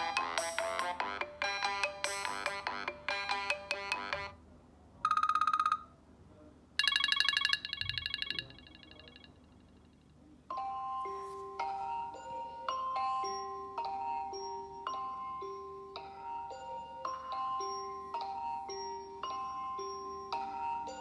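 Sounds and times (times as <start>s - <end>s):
melodic phone ringtone: 0.0s - 4.4s, 5.1s - 5.9s, 6.8s - 9.4s, 10.5s - 21.0s
ringtone with slow held notes: 0.0s - 4.4s, 5.0s - 6.0s, 6.8s - 21.0s
pulsing trill alert tone: 6.8s - 9.2s.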